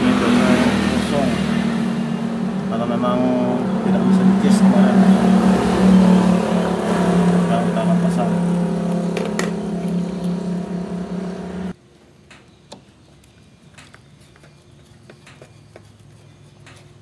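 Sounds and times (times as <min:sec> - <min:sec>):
motor droning: 0:00.0 - 0:11.8.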